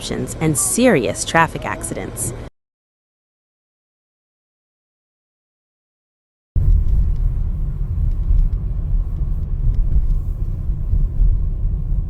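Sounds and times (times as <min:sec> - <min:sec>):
vehicle rumbling on road: 0:06.6 - 0:12.0.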